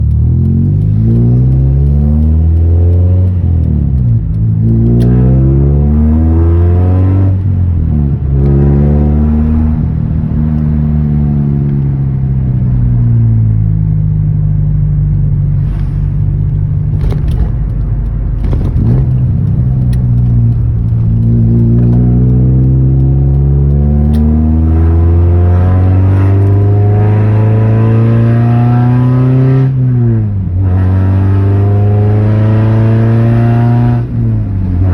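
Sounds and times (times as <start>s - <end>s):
car engine revving through gears: 0.0s - 13.2s, 15.5s - 34.9s.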